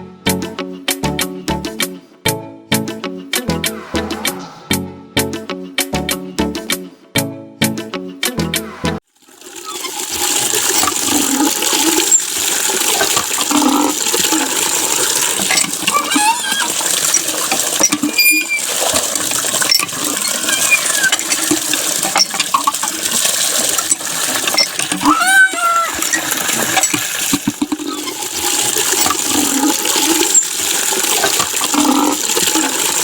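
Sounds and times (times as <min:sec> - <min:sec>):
water spraying and splashing: 0:09.1 - 0:33.0.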